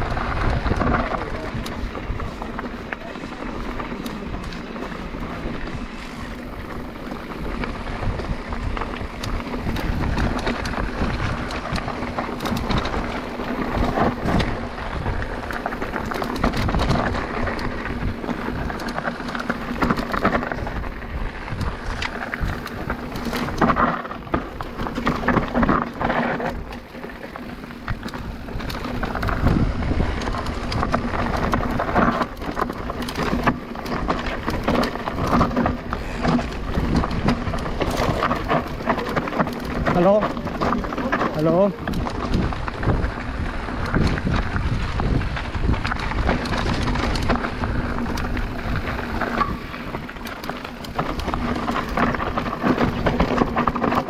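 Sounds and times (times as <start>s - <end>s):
microphone rumble: 0.0s - 19.0s, 34.0s - 50.2s
bike knocking and rattling: 0.0s - 54.0s
tyres crunching over gravel: 0.0s - 54.0s.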